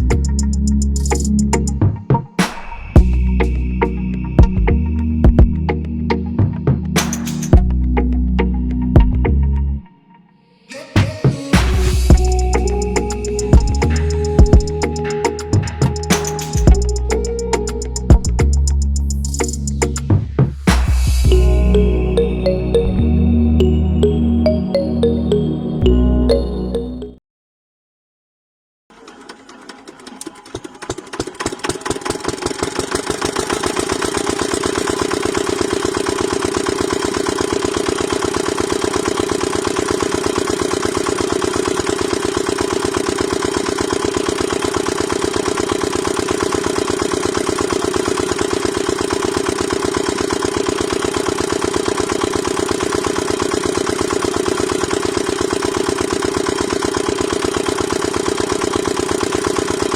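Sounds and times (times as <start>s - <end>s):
small engine chugging: 12.0s - 20.1s, 28.9s - 59.9s.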